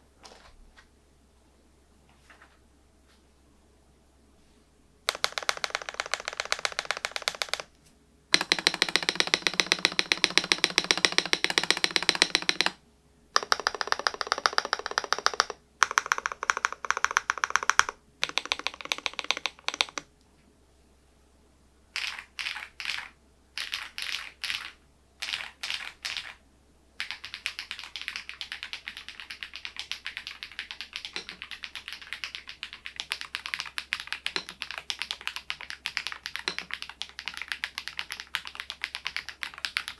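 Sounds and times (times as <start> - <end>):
typing on mechanical keyboard: 5.1 - 7.7, 8.3 - 12.8, 13.4 - 20.1, 22.0 - 26.4, 27.0 - 39.9.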